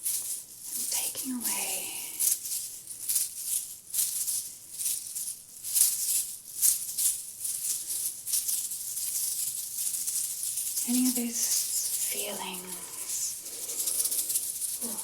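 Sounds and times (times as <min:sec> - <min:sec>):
hand bells jingling: 0:06.0 - 0:15.0.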